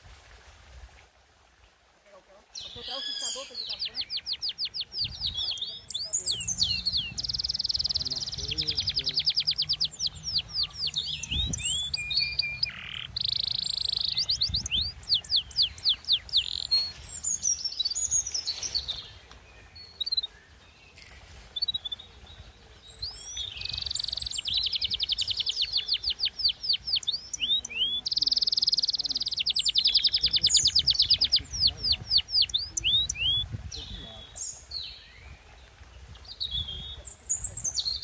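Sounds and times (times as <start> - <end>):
bird singing: 2.5 - 38.0.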